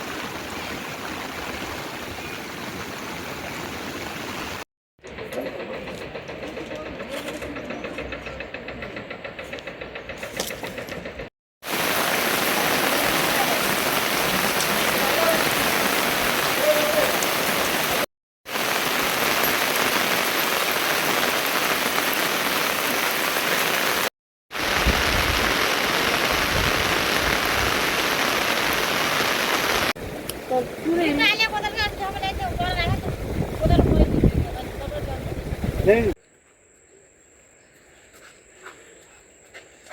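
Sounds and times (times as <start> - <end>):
heavy rain falling: 0.0 - 4.6, 11.6 - 36.0.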